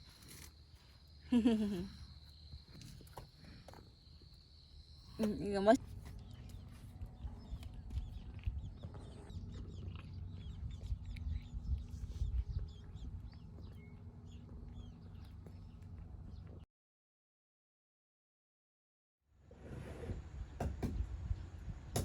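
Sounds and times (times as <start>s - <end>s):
birds chirping: 4.7s - 16.6s
steady low rumble: 5.8s - 16.6s.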